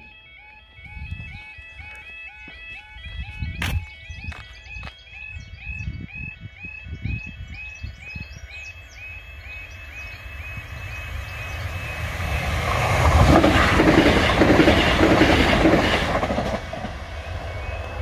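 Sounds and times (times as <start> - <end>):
crossing alarm rising tone: 0.0 - 18.0
train wheels clattering on rails: 11.9 - 18.0.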